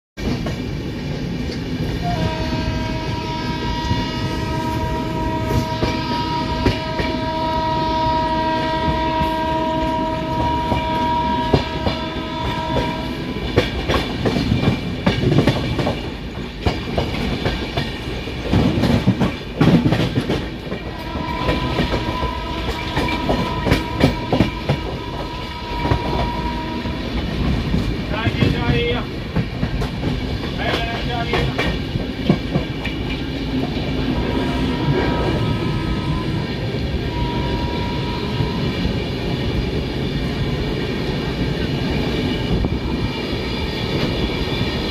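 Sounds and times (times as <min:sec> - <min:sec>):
train wheels clattering on rails: 0:00.2 - 0:03.0, 0:03.6 - 0:07.6, 0:08.8 - 0:35.5, 0:38.3 - 0:44.9
two-tone train horn: 0:02.0 - 0:14.0, 0:20.7 - 0:27.8, 0:34.1 - 0:39.1.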